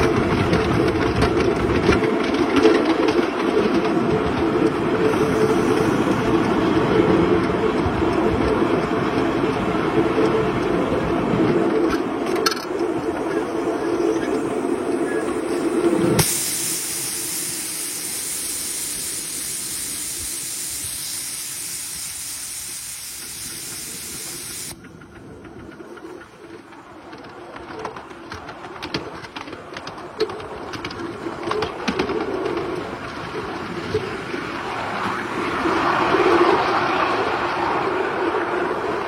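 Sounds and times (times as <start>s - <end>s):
loud steady hiss: 15.2s - 24.8s.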